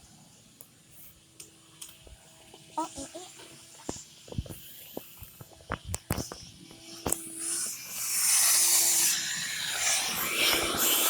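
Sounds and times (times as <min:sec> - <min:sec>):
spraying hiss: 0:07.4 - 0:11.0.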